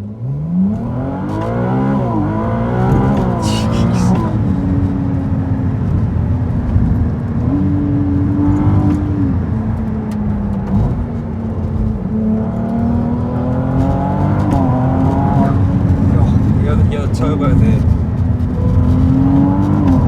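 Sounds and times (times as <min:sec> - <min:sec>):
car engine heard from cabin: 0:00.2 - 0:07.4.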